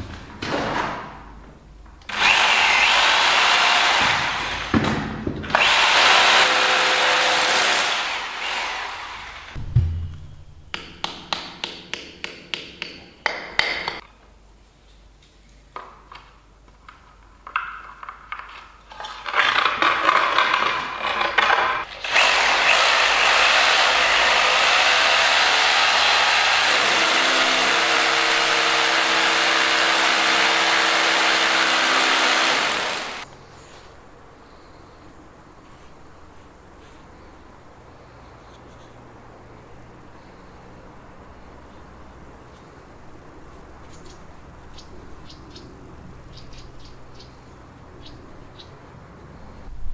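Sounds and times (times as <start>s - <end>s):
power tool running: 2.1s - 4.8s, 5.5s - 9.6s, 21.9s - 33.3s.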